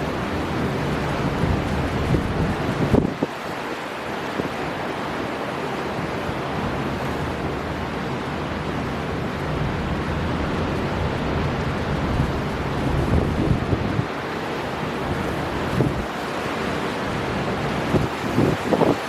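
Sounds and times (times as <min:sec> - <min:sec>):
wind buffeting microphone: 0:00.0 - 0:03.4, 0:09.3 - 0:19.0
waves breaking: 0:00.0 - 0:19.0.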